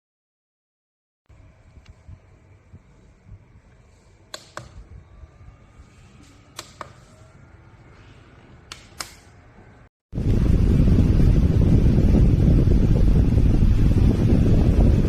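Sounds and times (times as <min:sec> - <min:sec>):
rush of air on microphone: 0:10.2 - 0:15.0.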